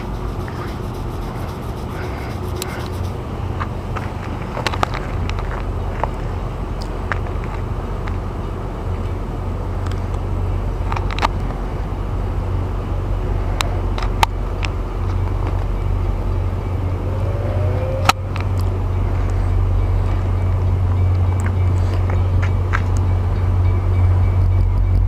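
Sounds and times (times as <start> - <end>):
engine idling: 0.0 - 4.1.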